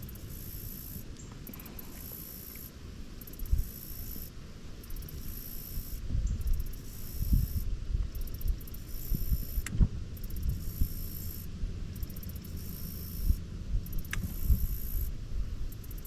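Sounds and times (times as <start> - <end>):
wind buffeting microphone: 5.9 - 12.1, 13.2 - 16.0.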